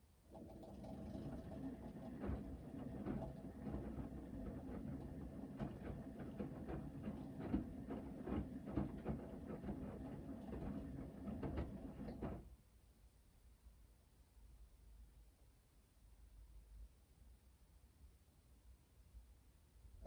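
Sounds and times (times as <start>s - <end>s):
washing machine drum rumbling: 0.3s - 12.4s
knocks and clicks of tumbling load: 0.3s - 12.5s.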